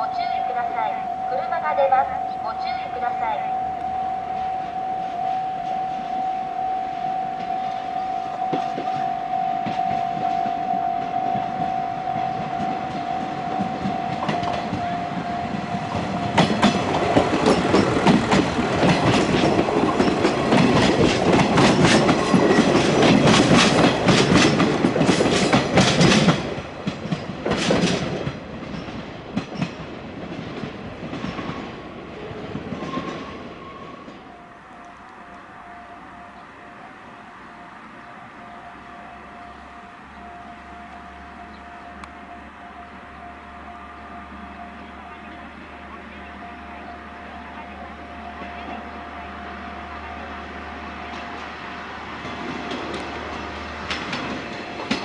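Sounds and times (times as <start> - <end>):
diesel railcar whine: 0.0 - 55.0
train rumble: 0.0 - 55.0
wheels clacking over rail joints: 7.2 - 35.1, 51.0 - 55.0.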